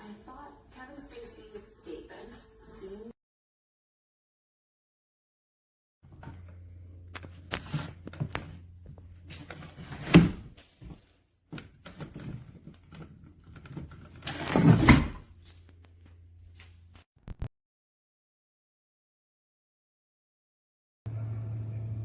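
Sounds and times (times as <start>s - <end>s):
low steady hum: 6.1s - 10.5s.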